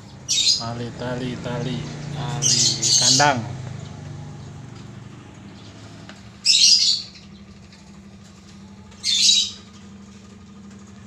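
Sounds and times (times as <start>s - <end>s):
bird harsh call: 0.0s - 4.4s, 5.6s - 7.9s, 8.9s - 9.8s.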